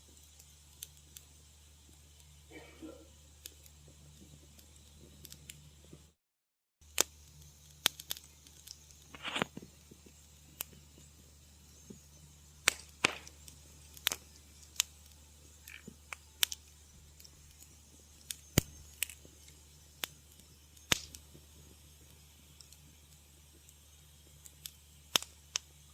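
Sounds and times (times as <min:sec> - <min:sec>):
faint low hum: 0:00.0 - 0:06.2
wood fire crackling: 0:00.0 - 0:06.2, 0:06.8 - 0:25.9.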